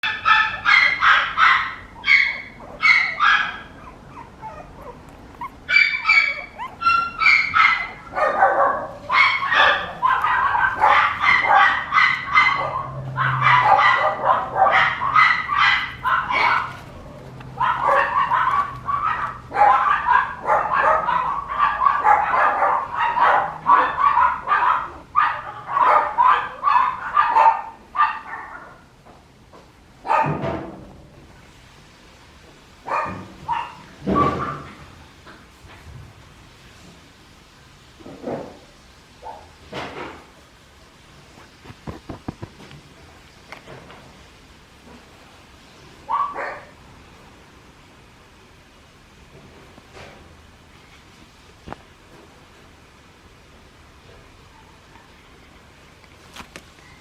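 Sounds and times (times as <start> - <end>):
puppy yapping: 0.0 - 28.8, 32.9 - 34.8, 46.1 - 46.8.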